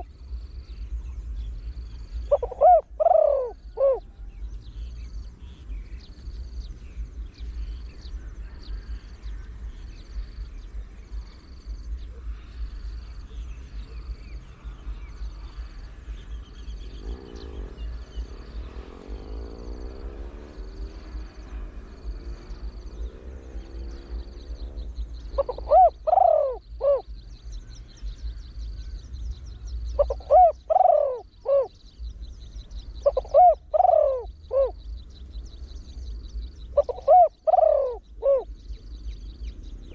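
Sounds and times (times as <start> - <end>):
dove cooing: 1.9 - 5.6, 11.2 - 27.6, 29.8 - 35.0, 36.4 - 38.9.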